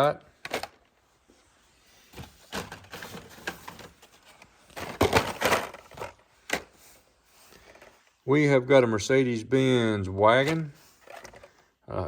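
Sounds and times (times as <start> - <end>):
plastic packaging clicking and rustling: 0.0 - 0.9, 2.1 - 6.8.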